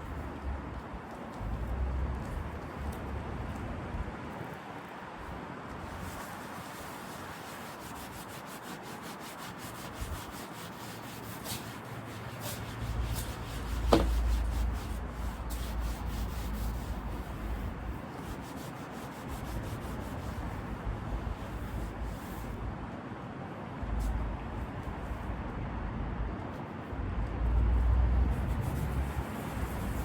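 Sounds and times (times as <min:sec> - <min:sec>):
hand sanding rubbing strokes: 0:05.8 - 0:22.6, 0:28.2 - 0:30.0.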